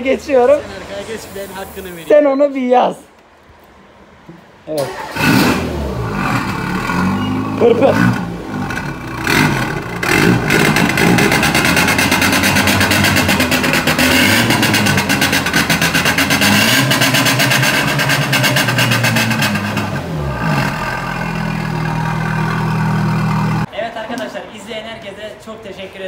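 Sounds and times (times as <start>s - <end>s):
car engine revving and idling: 5.0s - 23.7s.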